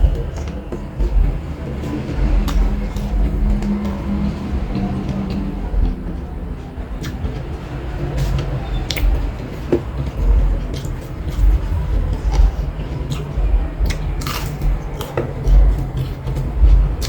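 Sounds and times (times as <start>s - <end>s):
low rumble: 0.0s - 17.0s
chewing and crunching: 8.2s - 17.0s.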